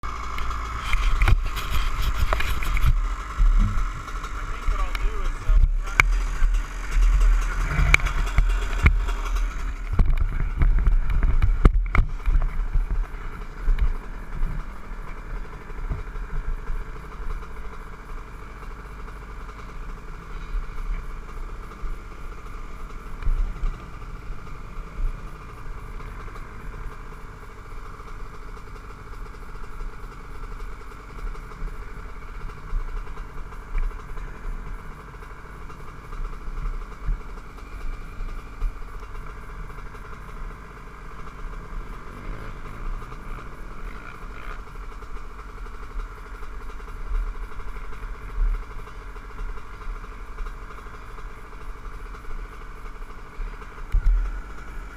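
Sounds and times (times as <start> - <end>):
dirt bike engine running: 0.0 - 54.9
low thumps on microphone: 1.1 - 4.0.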